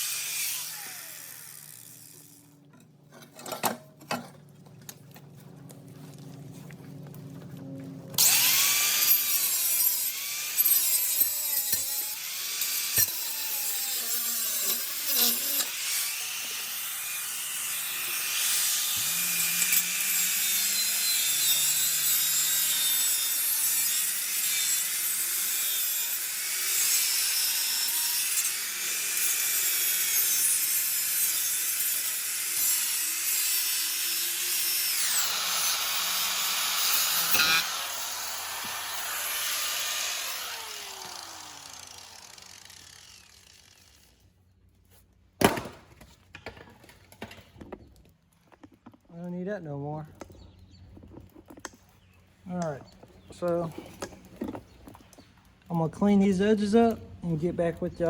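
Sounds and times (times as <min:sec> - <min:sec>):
angle grinder cutting steel pipe: 0:00.0 - 0:02.6, 0:08.2 - 0:44.2.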